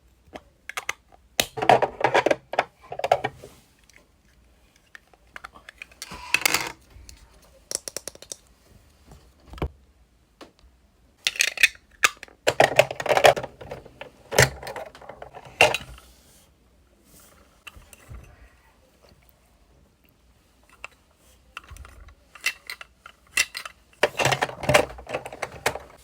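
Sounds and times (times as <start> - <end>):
plastic toy parts clicking: 0.7 - 3.3, 7.7 - 8.5, 11.2 - 15.8, 21.6 - 25.9.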